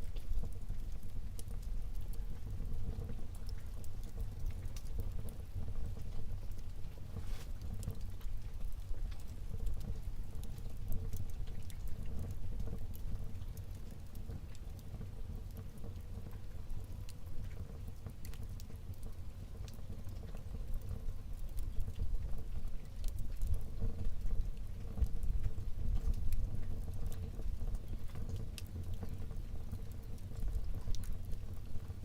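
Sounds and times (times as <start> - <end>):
fire crackles and pops: 0.0 - 32.0
low rumble of flames: 0.0 - 32.0.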